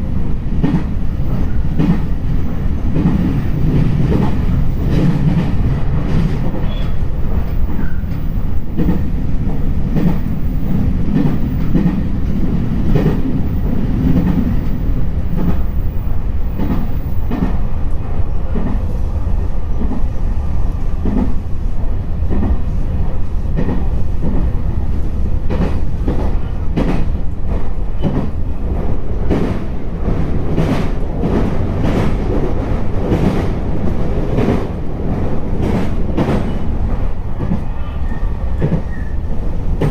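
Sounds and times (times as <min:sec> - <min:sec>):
train rumble: 0:00.0 - 0:39.9
wheels clacking on rail joints: 0:00.5 - 0:17.6, 0:25.4 - 0:37.7, 0:38.5 - 0:39.9.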